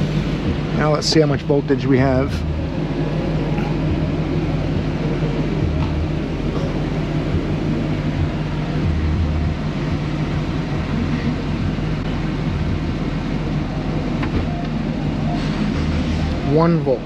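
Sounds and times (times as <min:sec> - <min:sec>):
machine humming: 0:00.0 - 0:17.0.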